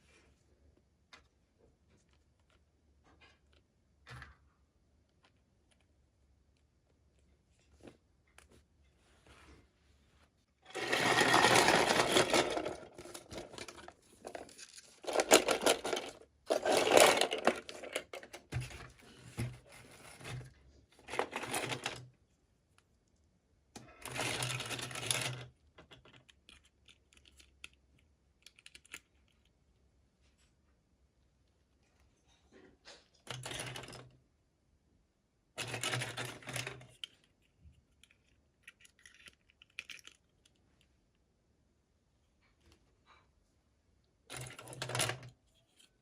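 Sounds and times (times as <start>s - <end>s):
scratchy packaging rustling: 10.6s - 22.0s.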